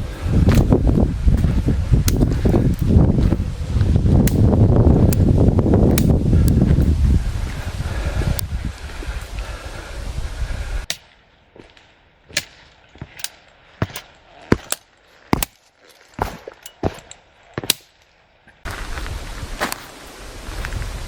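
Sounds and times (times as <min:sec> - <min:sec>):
footsteps on rocky trail: 0:00.0 - 0:09.8, 0:11.0 - 0:21.0
wind buffeting microphone: 0:00.0 - 0:10.9, 0:18.6 - 0:21.0.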